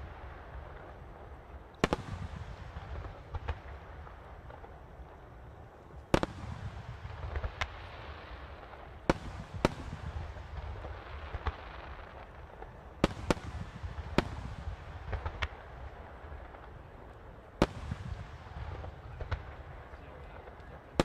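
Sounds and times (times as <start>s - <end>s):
low rumbling and crackling: 0.0s - 21.0s.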